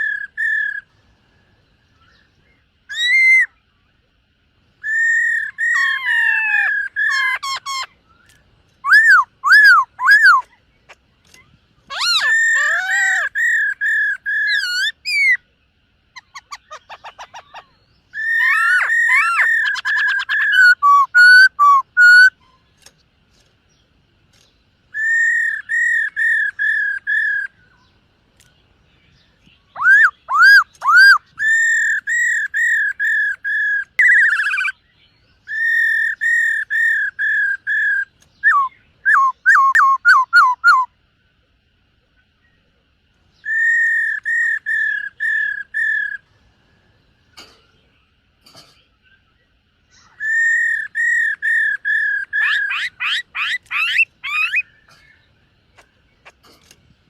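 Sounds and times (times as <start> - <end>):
bird singing whistled phrases: 2.9 - 3.6, 4.8 - 10.5, 16.2 - 22.5, 24.9 - 27.6, 29.6 - 34.8, 35.4 - 40.9, 43.4 - 46.2, 49.9 - 55.0.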